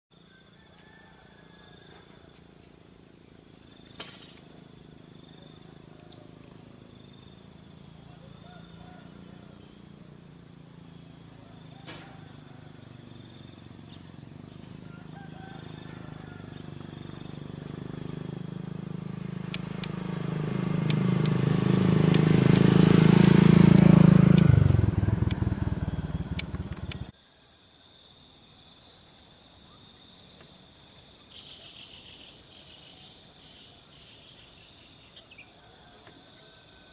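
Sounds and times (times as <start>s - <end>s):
insect drone: 0.1s - 36.9s
low engine-like hum: 4.2s - 27.1s.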